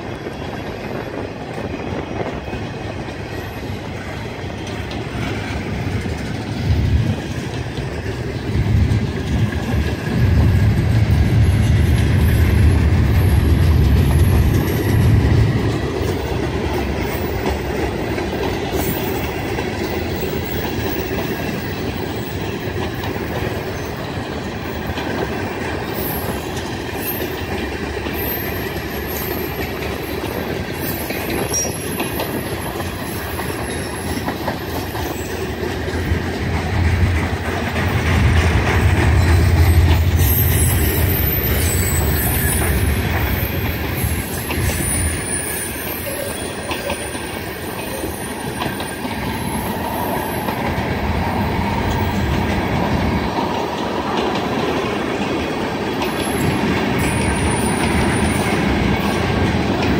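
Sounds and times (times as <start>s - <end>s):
train wheels on rails: 0.0s - 59.9s
faint high wheel squeals: 28.1s - 35.6s, 39.1s - 50.6s.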